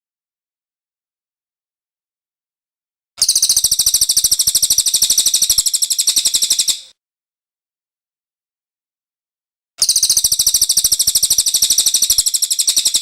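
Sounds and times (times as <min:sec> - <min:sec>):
bird high-pitched trill: 0:03.2 - 0:06.9, 0:09.8 - 0:13.0.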